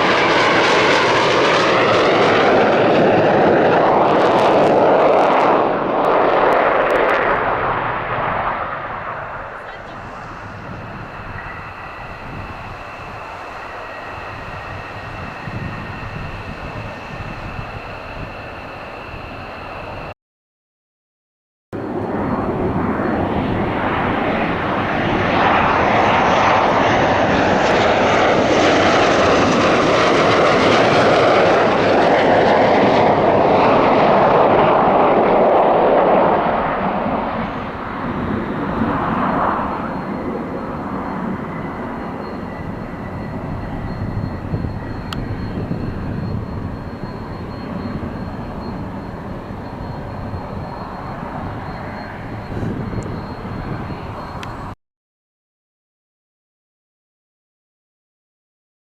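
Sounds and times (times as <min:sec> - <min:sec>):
fighter jet passing by: 0:00.0 - 0:20.2, 0:21.8 - 0:54.8.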